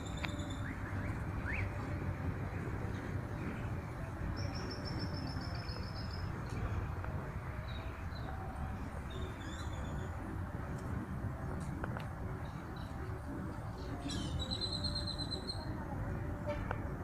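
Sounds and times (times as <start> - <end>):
steady low rumble: 0.0 - 14.5.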